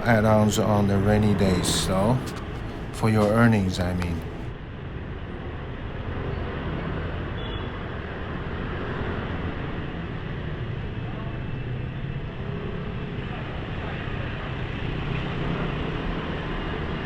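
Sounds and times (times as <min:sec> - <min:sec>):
scooter engine rumble: 0:00.0 - 0:04.5
wind and road noise: 0:00.0 - 0:11.0.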